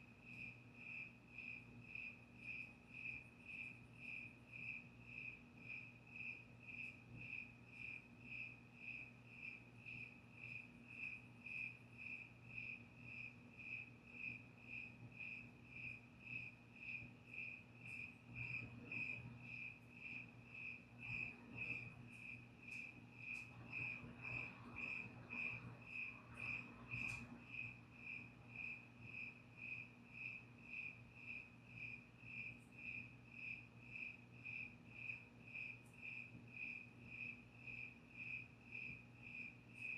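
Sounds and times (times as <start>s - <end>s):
cricket chirping: 0.2s - 39.9s.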